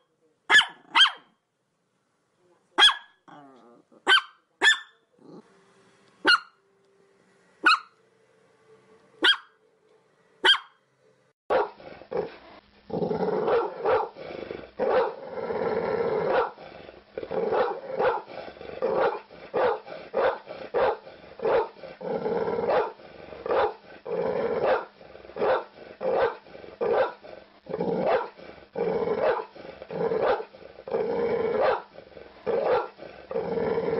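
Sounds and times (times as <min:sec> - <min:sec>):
dogs barking: 0:00.5 - 0:01.3, 0:02.8 - 0:03.2, 0:04.0 - 0:05.0, 0:06.2 - 0:06.5, 0:07.6 - 0:08.0, 0:09.2 - 0:09.5, 0:10.4 - 0:10.8, 0:11.5 - 0:11.8, 0:13.4 - 0:14.2, 0:14.8 - 0:15.2, 0:16.3 - 0:16.6, 0:17.5 - 0:18.3, 0:18.9 - 0:21.8, 0:22.6 - 0:23.8, 0:24.6 - 0:27.2, 0:28.0 - 0:28.4, 0:29.2 - 0:29.5, 0:30.1 - 0:30.5, 0:31.5 - 0:31.9, 0:32.5 - 0:33.0
small dog barking rapidly: 0:00.5 - 0:01.3, 0:02.8 - 0:03.2, 0:04.0 - 0:05.0, 0:06.2 - 0:06.5, 0:07.6 - 0:07.9, 0:09.2 - 0:09.5, 0:10.4 - 0:10.7, 0:11.5 - 0:11.8, 0:19.0 - 0:21.7, 0:25.4 - 0:27.2, 0:31.6 - 0:31.9.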